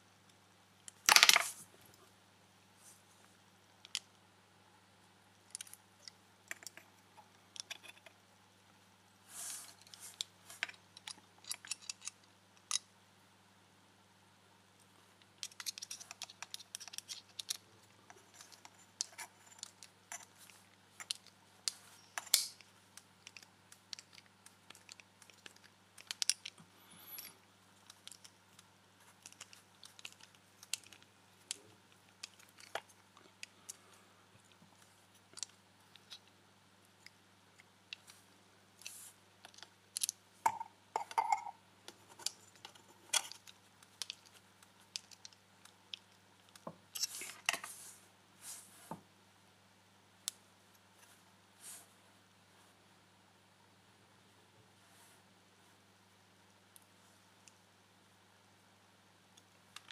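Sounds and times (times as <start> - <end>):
faint electrical hum: 0.0 - 59.9
hands handling small plastic parts: 0.8 - 1.7, 5.4 - 8.2, 9.4 - 12.9, 15.2 - 47.9.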